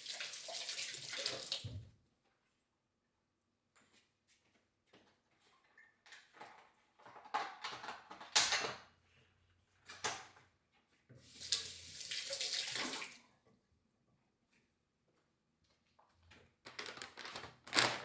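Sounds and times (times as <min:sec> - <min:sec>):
water pouring: 0:00.0 - 0:01.8, 0:11.3 - 0:13.2.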